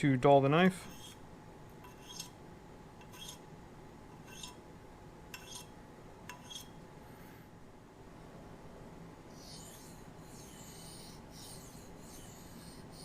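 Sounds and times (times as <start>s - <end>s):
knife scraping glass: 1.8s - 2.4s, 3.0s - 3.4s, 4.2s - 4.6s, 5.3s - 5.7s, 6.3s - 6.8s, 9.4s - 13.0s.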